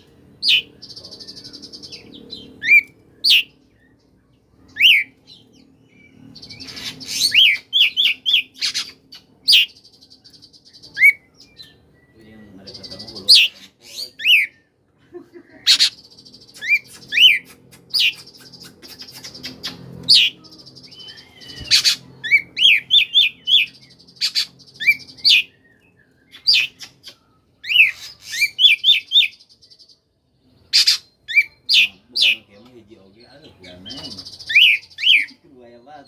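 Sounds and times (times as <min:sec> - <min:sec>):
bird singing whistled notes: 0:04.6 - 0:14.8, 0:16.0 - 0:30.0, 0:33.2 - 0:35.5.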